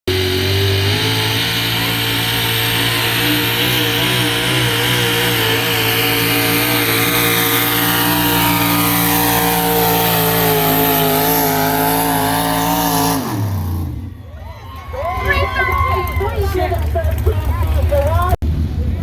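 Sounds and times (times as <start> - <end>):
truck engine at high revs: 0.0 - 14.4.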